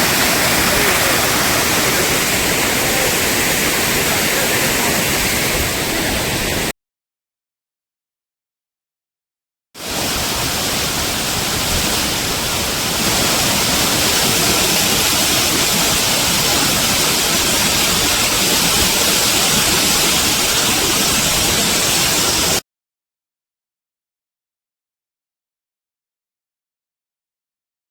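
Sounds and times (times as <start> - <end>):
waterfall rushing: 0.0 - 6.7, 9.8 - 22.6.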